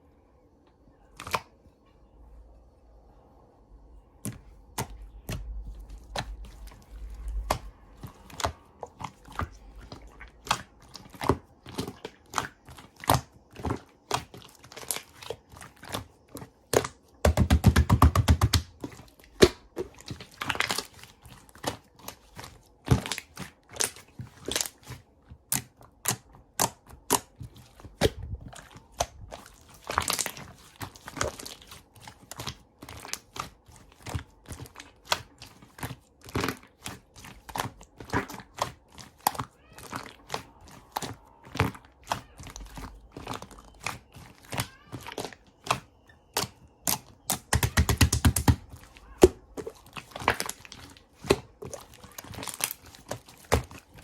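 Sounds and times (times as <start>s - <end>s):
slime clicking and popping: 21.6s - 54.0s.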